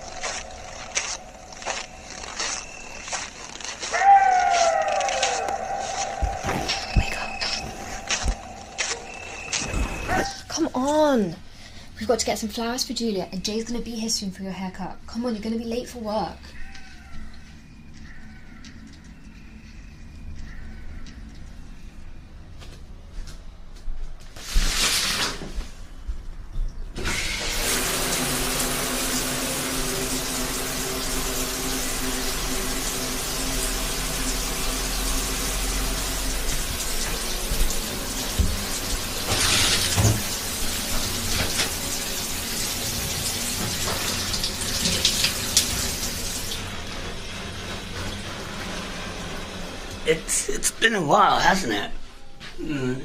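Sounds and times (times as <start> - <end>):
tap water running into sink: 27.0 - 50.0
water splashes: 27.4 - 49.2.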